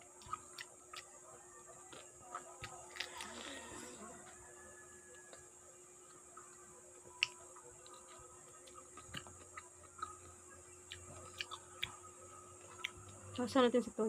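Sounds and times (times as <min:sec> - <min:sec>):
pineapple chewing: 0:00.0 - 0:13.5.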